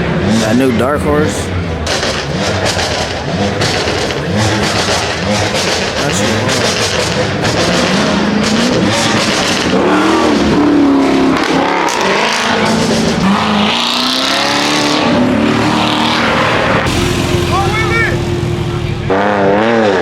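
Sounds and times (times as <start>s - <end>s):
car engine revving: 0.0s - 20.0s
rushing noise: 0.0s - 20.0s.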